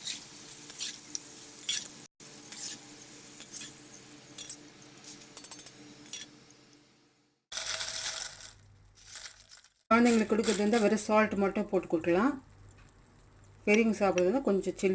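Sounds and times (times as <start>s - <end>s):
hot oil sizzling and crackling: 0.0s - 8.4s.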